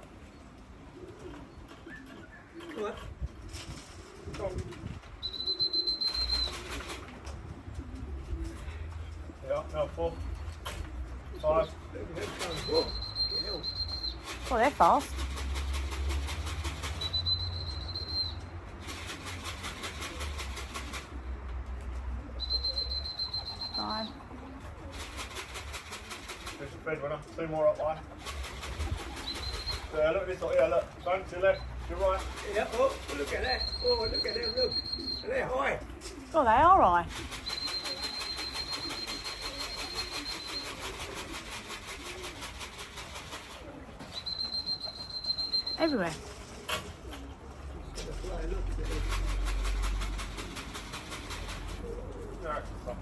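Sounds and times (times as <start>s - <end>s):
pigeons cooing: 0.1s - 17.1s, 18.8s - 27.4s, 28.0s - 53.0s
high electronic beep: 12.6s - 14.2s, 33.4s - 35.3s, 44.2s - 46.2s.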